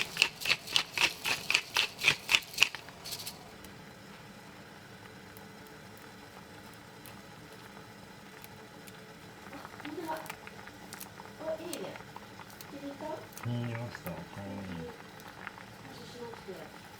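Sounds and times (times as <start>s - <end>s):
kitchen utensil strokes: 0.0s - 3.4s.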